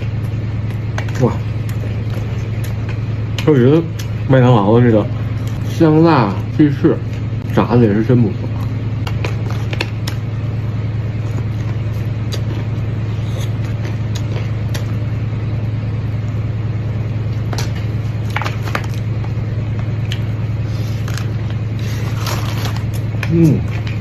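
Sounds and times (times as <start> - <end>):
chewing crispy chicken: 0.0 - 4.3, 8.4 - 15.2, 17.0 - 24.0
low hum: 0.0 - 24.0.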